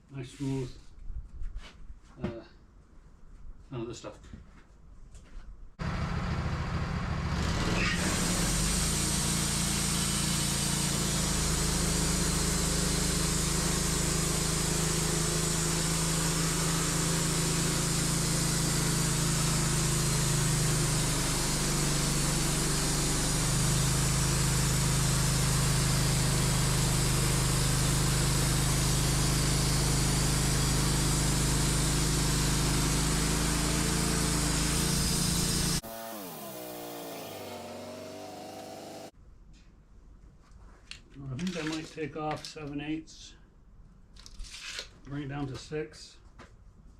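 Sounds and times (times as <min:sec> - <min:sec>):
sawmill engine running: 0:05.8 - 0:39.1
band blade cutting log hiss: 0:08.3 - 0:39.1.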